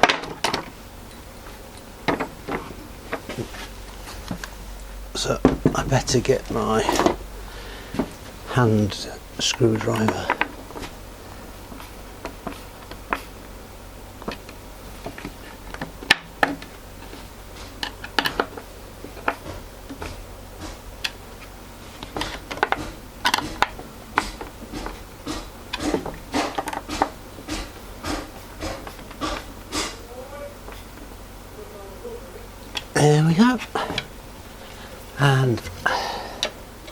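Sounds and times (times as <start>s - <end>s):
faint low hum: 0.0s - 36.9s.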